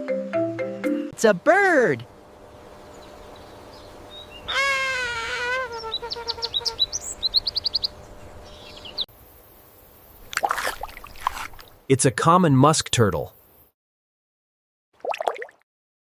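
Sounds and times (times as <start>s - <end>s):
bird calling: 2.6s - 9.1s.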